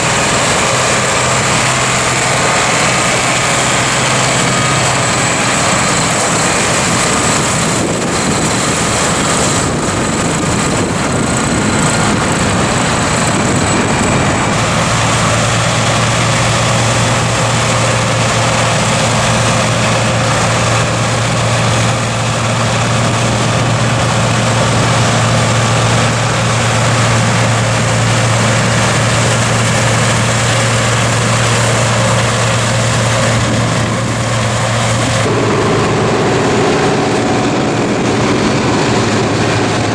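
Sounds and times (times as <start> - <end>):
tractor engine running: 0.0 - 39.9
faint high whine: 35.3 - 39.7.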